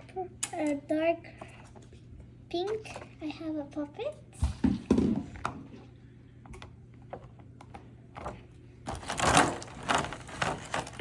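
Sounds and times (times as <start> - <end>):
packaging crinkling and rustling: 8.9 - 11.0.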